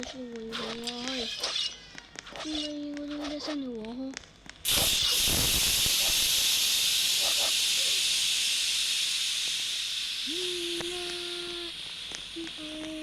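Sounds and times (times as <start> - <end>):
loud steady hiss: 4.7 - 13.0.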